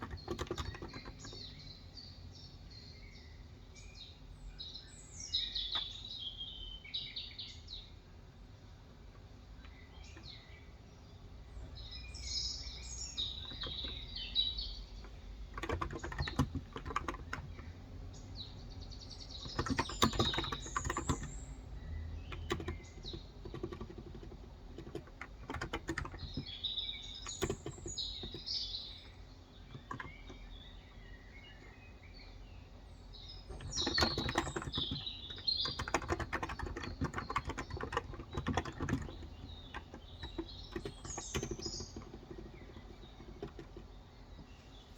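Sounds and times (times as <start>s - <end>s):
typing on a keyboard: 0.0s - 1.6s, 13.2s - 17.7s, 19.3s - 30.5s, 33.5s - 44.6s
birds chirping: 0.0s - 44.9s.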